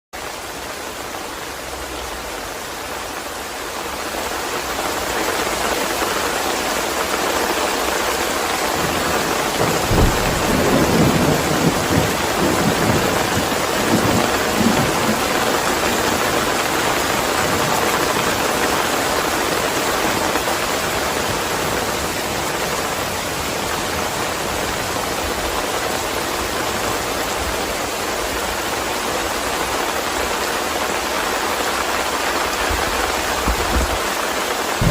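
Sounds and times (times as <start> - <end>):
heavy rain: 0.2 - 34.9
low thunder rumbling: 8.8 - 22.3.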